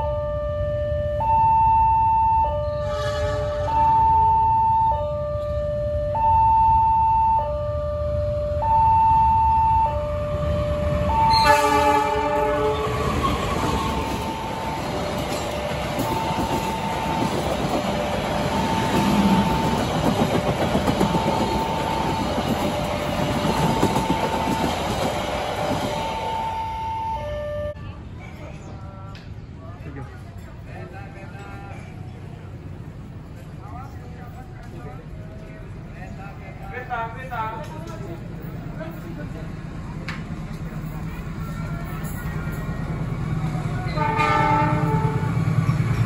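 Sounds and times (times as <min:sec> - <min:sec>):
level crossing warning alarm: 0:00.0 - 0:03.0, 0:03.6 - 0:25.0, 0:26.0 - 0:27.8
train wheel and rail noise: 0:00.0 - 0:46.0
locomotive horn: 0:02.6 - 0:03.8, 0:11.1 - 0:14.4, 0:43.8 - 0:45.5.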